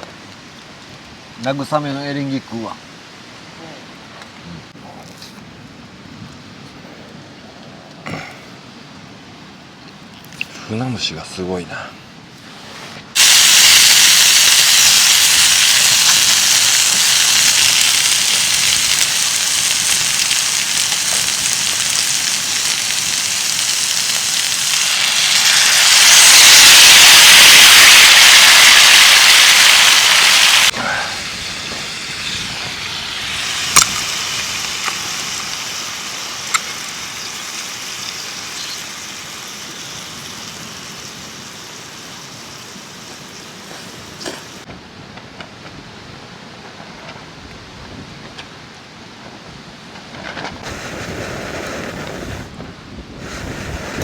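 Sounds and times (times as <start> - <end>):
heavy rain pouring: 13.2 - 44.7.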